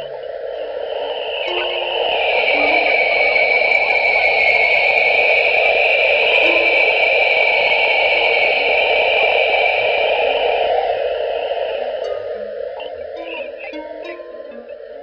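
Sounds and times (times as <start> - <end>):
steady wash of noise: 0.0 - 15.0
faint short notes: 1.5 - 3.6, 12.0 - 15.0.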